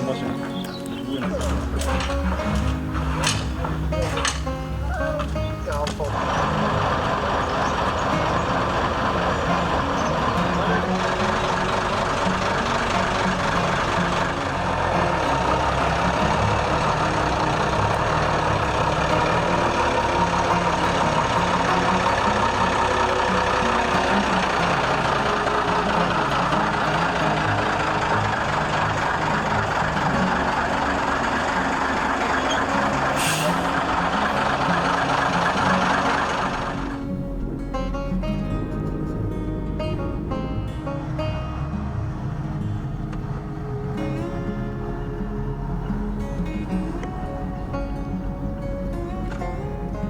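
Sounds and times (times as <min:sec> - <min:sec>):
truck engine running: 0:00.0 - 0:50.0
air release hiss: 0:33.1 - 0:33.8.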